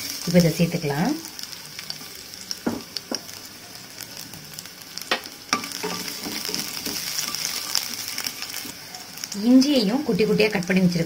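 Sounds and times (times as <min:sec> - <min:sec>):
garlic sizzling in hot oil: 0:00.0 - 0:11.0
wooden spatula knocking on pan: 0:02.6 - 0:03.2, 0:05.1 - 0:07.1.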